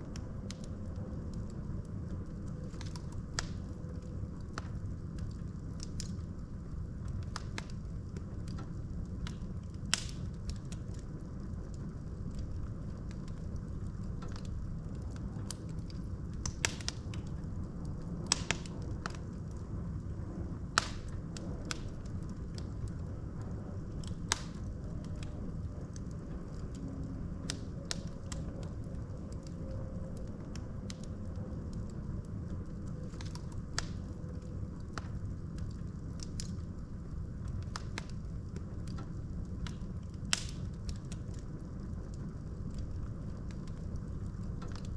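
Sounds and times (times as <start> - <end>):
logs crackling and popping: 0.0 - 44.9
low rumble of flames: 0.0 - 44.9.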